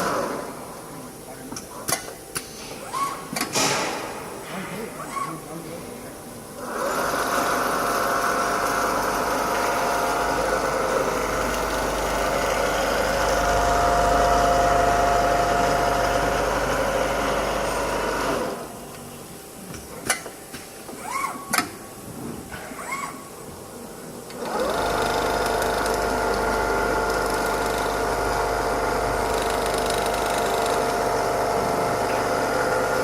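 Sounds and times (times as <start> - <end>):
sewing machine humming: 6.6 - 18.7, 24.4 - 33.0.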